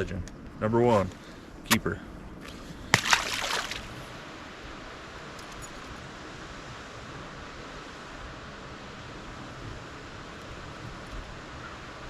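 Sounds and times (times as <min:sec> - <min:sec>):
water splash: 0:02.9 - 0:04.1.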